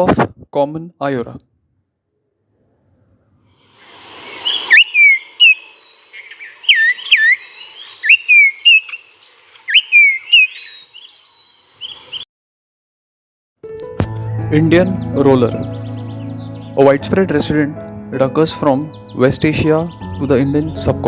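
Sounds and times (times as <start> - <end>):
bird whistling sharp notes: 3.8 - 9.0, 9.7 - 12.0.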